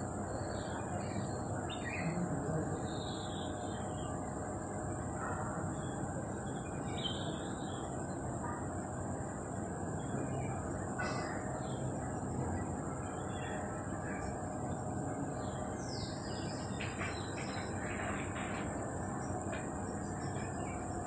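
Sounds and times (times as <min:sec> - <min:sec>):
birds chirping: 0:09.9 - 0:21.0.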